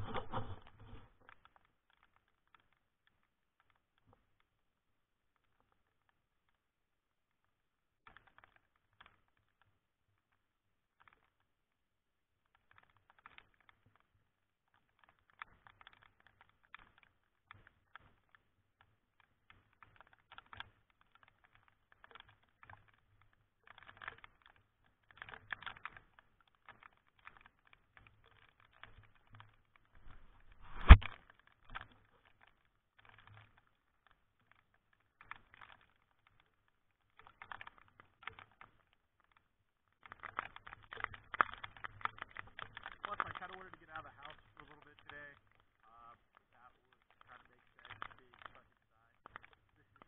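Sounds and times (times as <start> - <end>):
raindrops tapping on camera: 0.0 - 6.7, 7.3 - 11.7, 12.4 - 50.0.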